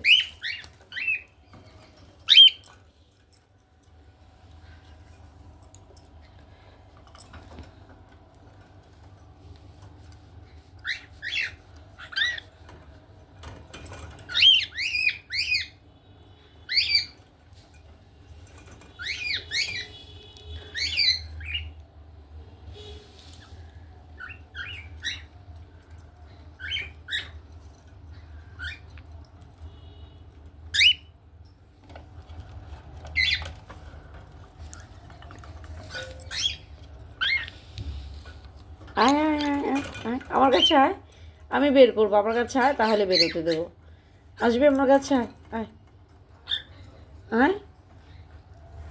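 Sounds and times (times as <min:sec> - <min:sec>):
cockatiels chirping and squawking: 0:00.0 - 0:01.4, 0:02.2 - 0:02.7, 0:10.7 - 0:12.8, 0:13.9 - 0:15.8, 0:16.7 - 0:17.2, 0:18.7 - 0:21.8, 0:24.2 - 0:25.4, 0:26.3 - 0:29.1, 0:30.7 - 0:31.1, 0:32.8 - 0:33.7, 0:35.5 - 0:37.8, 0:42.6 - 0:43.7, 0:46.4 - 0:47.1.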